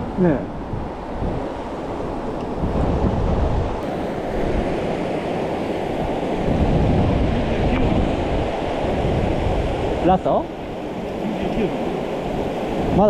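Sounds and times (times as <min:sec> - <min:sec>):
wind buffeting microphone: 0:00.0 - 0:13.0
mountain stream running: 0:03.6 - 0:13.0.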